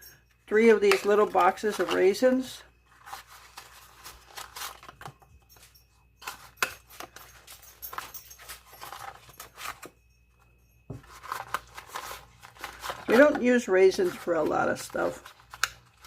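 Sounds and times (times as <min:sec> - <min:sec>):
cardboard boxes rustling and tapping: 0:10.9 - 0:15.7.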